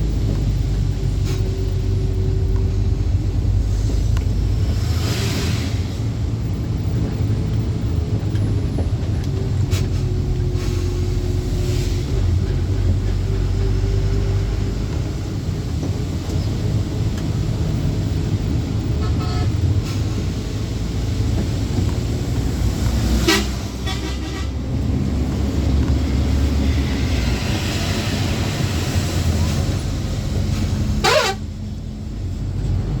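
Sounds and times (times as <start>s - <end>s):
truck engine and road rumble: 0.0s - 33.0s
vehicle horn: 19.0s - 19.5s, 23.2s - 24.6s, 31.0s - 31.6s.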